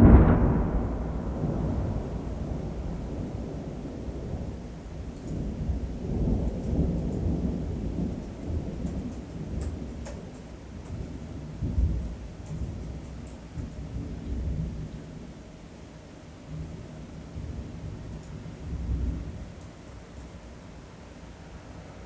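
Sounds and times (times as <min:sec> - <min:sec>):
thunder rumbling: 0:00.0 - 0:12.8.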